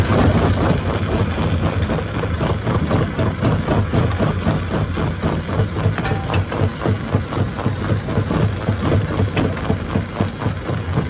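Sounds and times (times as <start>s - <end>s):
heavy stone-crushing machinery: 5.7s - 11.0s.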